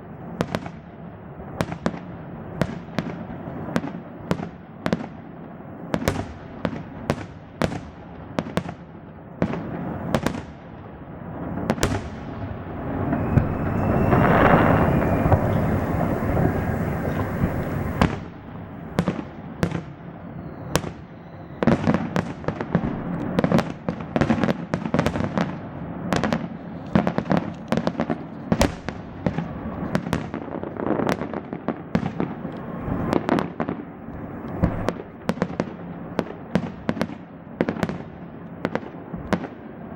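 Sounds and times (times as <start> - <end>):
fireworks bangs: 11.6 - 19.8, 32.0 - 37.2
fireworks crackling: 12.4 - 19.0, 32.4 - 33.3, 34.1 - 36.4.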